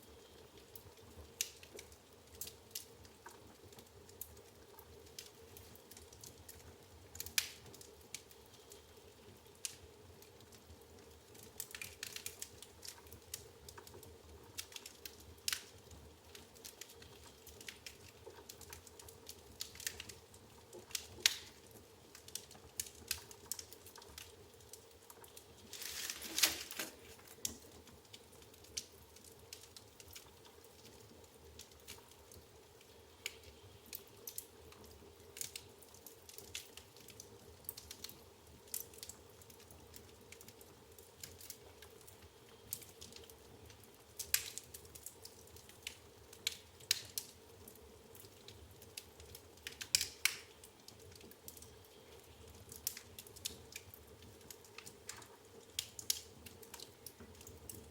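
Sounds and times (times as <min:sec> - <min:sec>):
firewood crackling and popping: 0:00.0 - 0:57.9
hissing crackle: 0:00.0 - 0:57.9.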